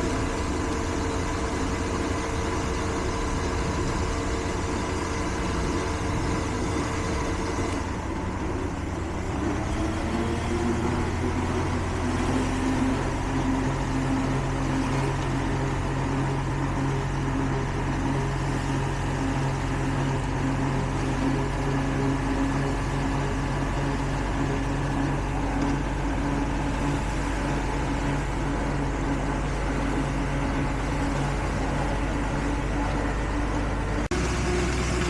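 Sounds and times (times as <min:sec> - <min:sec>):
diesel engine humming: 0:00.0 - 0:35.0.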